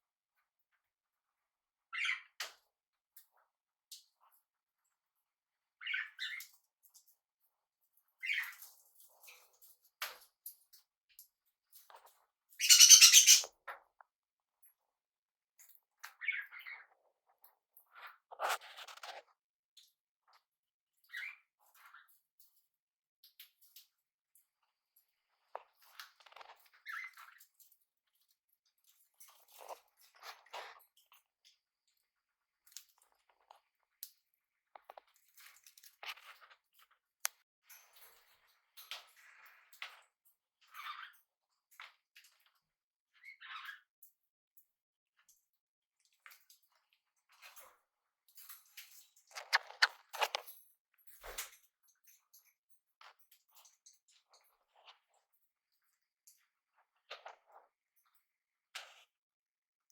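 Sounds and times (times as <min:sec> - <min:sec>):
birds scratchy crunchy noises: 0:11.9 - 0:13.6, 0:17.9 - 0:19.3, 0:25.6 - 0:27.5, 0:49.3 - 0:50.4
parrot harsh call: 0:12.6 - 0:13.5
parrot soft chirps: 0:12.6 - 0:13.5.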